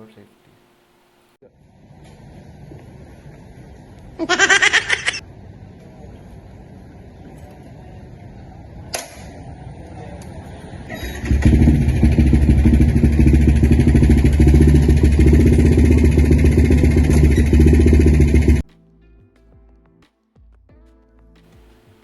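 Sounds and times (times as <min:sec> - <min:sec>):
motorcycle engine running: 0:11.0 - 0:18.6.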